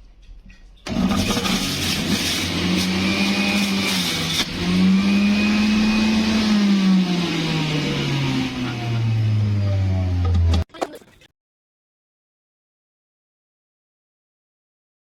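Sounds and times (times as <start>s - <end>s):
juicer motor running: 0.9s - 10.6s.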